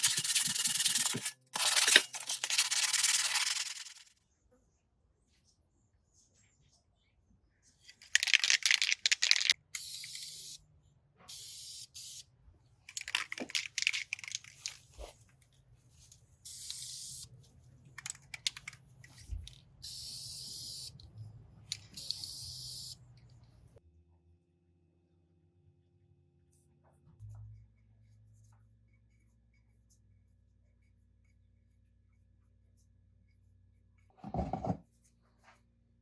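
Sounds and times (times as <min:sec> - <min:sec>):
scraping on parts: 0:00.0 - 0:04.1.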